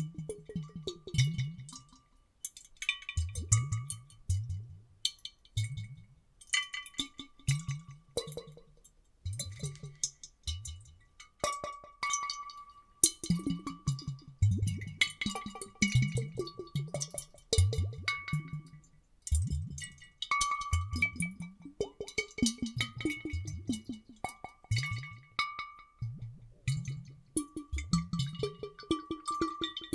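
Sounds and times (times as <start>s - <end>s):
water sloshing in glass bottles: 26.7s - 29.9s.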